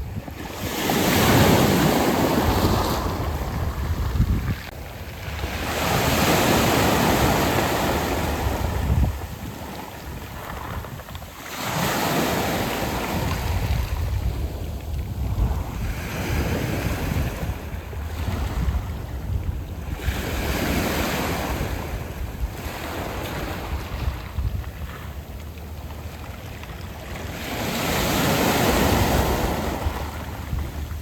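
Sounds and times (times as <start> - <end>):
waves washing over pebbles: 0.0 - 18.7.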